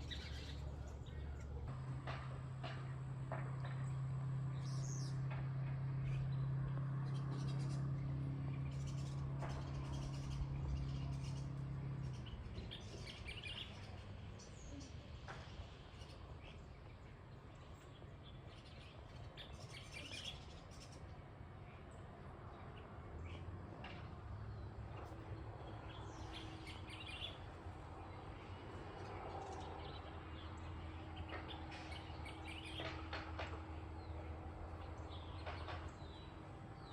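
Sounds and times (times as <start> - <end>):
birds chirping: 0.0 - 36.9
low mechanical hum: 0.0 - 36.9.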